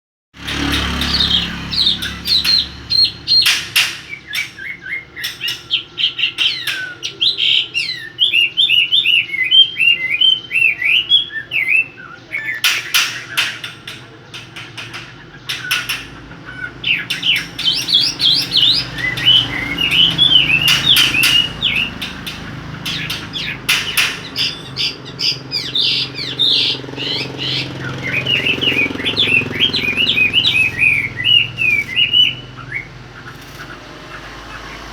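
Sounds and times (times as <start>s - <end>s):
sharp clicks: 0.4s - 7.4s, 12.5s - 32.0s
songbird chirping song: 0.4s - 34.9s.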